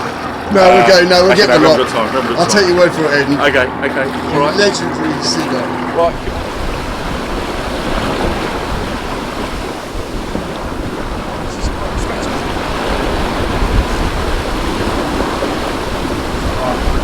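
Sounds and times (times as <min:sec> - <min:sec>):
water washing: 0:00.0 - 0:17.0
wind buffeting microphone: 0:00.0 - 0:17.0.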